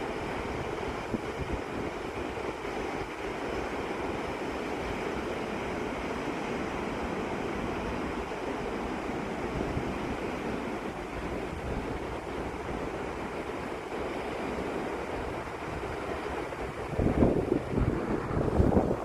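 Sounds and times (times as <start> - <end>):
wind buffeting microphone: 0.0 - 3.7, 9.5 - 19.0.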